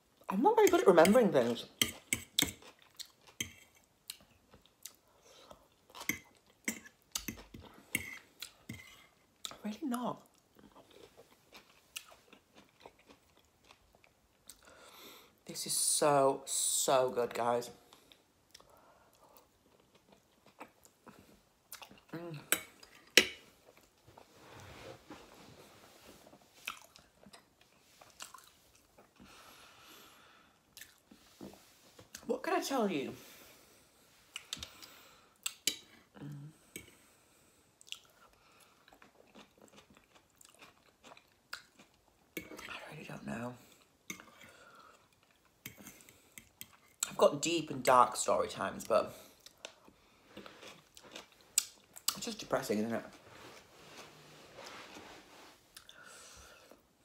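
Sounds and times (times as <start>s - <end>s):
chewing and wet mouth sounds: 1.8s - 9.6s, 10.2s - 14.7s, 17.9s - 24.3s, 26.6s - 29.3s, 30.6s - 31.3s, 37.8s - 42.8s, 49.4s - 52.3s, 55.7s - 56.0s.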